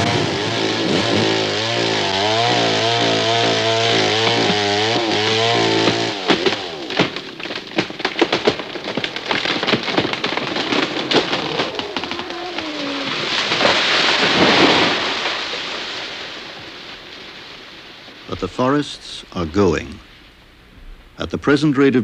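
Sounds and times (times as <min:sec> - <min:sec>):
chainsaw cutting: 0:00.0 - 0:16.4
splintering wood cracks: 0:00.0 - 0:20.0.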